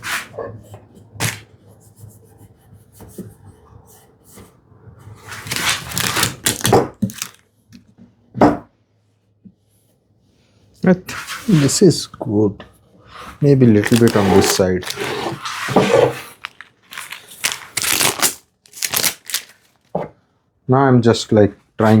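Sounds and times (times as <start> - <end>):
plane scraping wood: 13.9 - 16.3.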